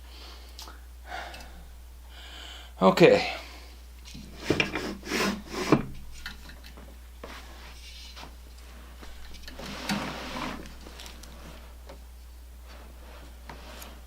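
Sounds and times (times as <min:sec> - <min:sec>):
scraping rub: 0:04.2 - 0:06.2, 0:07.2 - 0:11.8, 0:12.6 - 0:14.0.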